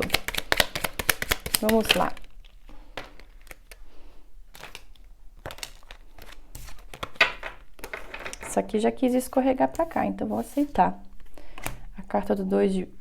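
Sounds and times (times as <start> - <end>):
cards snapping and sliding: 0.0 - 2.1, 4.5 - 7.2.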